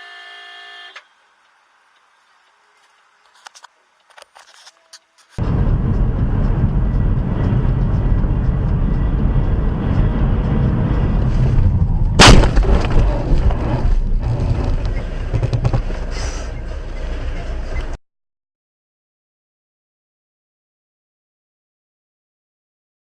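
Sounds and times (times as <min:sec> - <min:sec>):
car driving rumble: 0:05.4 - 0:18.0
collision bang: 0:12.1 - 0:13.5.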